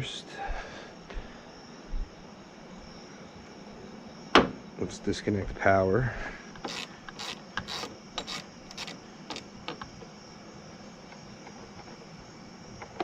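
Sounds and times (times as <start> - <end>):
ratchet wrench rasping: 6.6 - 9.5.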